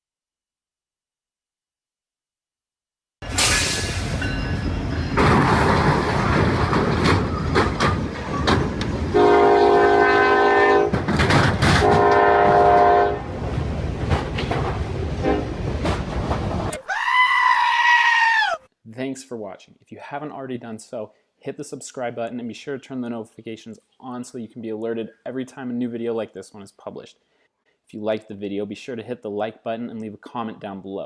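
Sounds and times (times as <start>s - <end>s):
train rumbling with clattering wheels: 3.2s - 9.8s, 10.5s - 16.8s
locomotive air horn: 9.1s - 11.1s, 11.7s - 13.3s, 15.2s - 15.6s.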